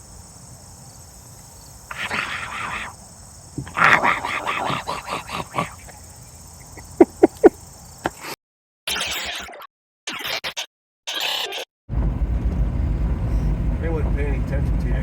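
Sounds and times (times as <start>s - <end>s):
insects trilling: 0.0s - 8.3s
short loud animal calls: 1.9s - 3.0s.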